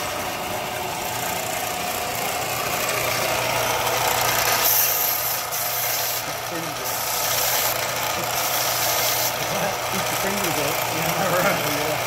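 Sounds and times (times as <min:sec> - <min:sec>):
electric sander rasping: 0:00.0 - 0:12.0.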